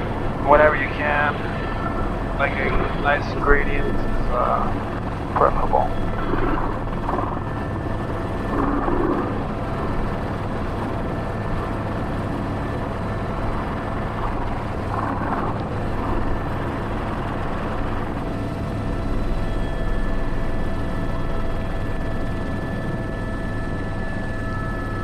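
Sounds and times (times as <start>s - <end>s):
helicopter turbine and rotor drone: 0.0s - 25.0s.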